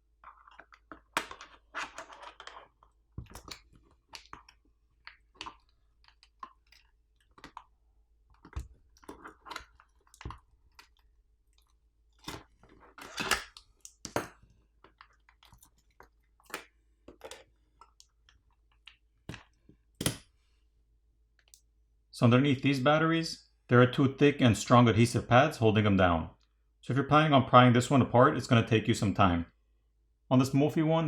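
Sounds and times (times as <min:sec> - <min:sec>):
plastic parts clicking and tapping: 0:00.2 - 0:07.7, 0:08.3 - 0:20.3.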